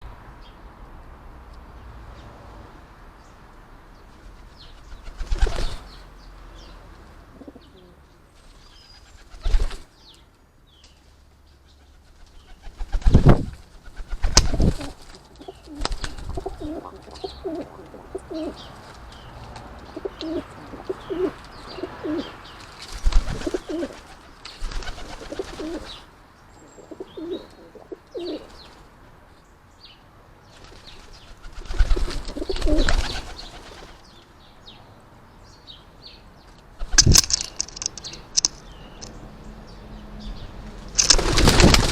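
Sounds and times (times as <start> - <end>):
small birds chirping: 3.2 - 41.9
wings flapping: 4.1 - 6.0, 8.4 - 9.9, 12.0 - 19.7, 22.6 - 26.0, 30.6 - 34.0, 36.8 - 39.1, 40.8 - 41.9
pigeons cooing: 7.3 - 8.0, 14.4 - 18.8, 19.8 - 22.4, 23.2 - 24.1, 24.8 - 26.0, 26.7 - 28.6, 31.6 - 34.0.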